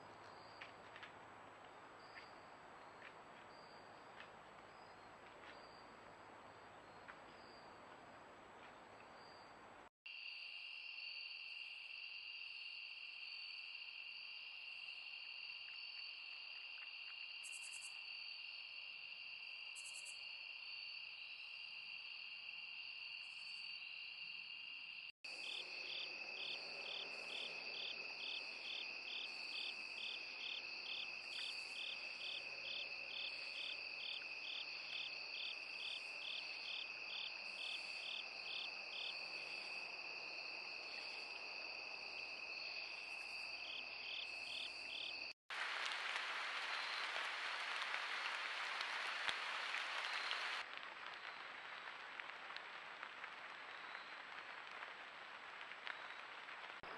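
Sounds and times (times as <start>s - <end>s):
crickets trilling: 10.1s - 45.4s
insect pulsed chirp: 16.8s - 18.1s, 19.7s - 20.4s.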